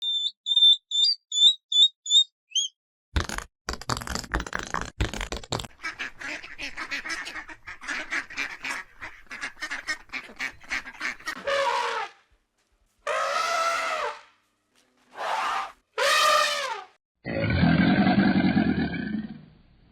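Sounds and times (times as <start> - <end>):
flamingos honking: 10.2 - 12.1, 13.1 - 14.2, 15.2 - 16.9.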